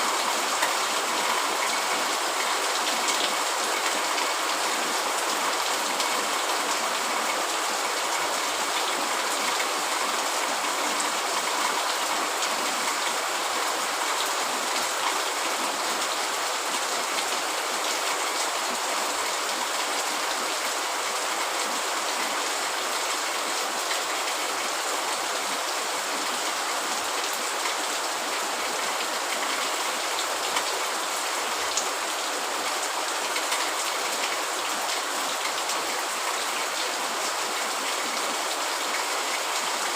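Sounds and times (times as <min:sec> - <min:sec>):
heavy rain on a tent: 0:00.0 - 0:39.9.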